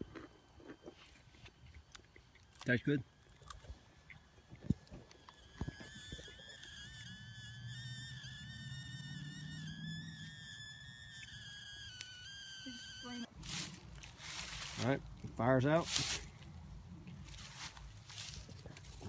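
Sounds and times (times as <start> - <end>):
steam whistling from campfire: 3.8 - 13.3.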